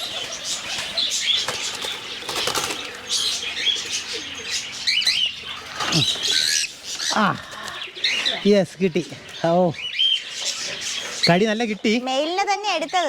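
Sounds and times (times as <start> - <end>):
birds flapping wings: 0.0 - 3.4
falling bird squawks: 0.0 - 8.5.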